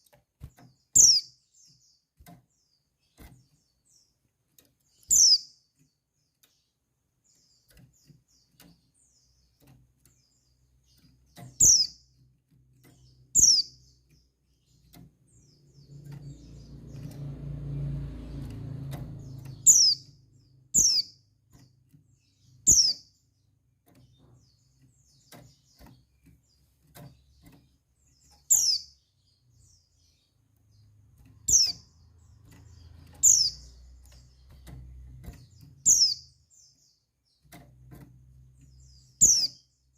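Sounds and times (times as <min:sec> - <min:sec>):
high sharp bird chirps: 0:00.9 - 0:01.4, 0:05.0 - 0:05.6, 0:11.5 - 0:12.0, 0:13.3 - 0:14.0, 0:18.9 - 0:21.3, 0:22.4 - 0:23.2, 0:28.2 - 0:29.8, 0:31.4 - 0:36.5, 0:38.8 - 0:39.7.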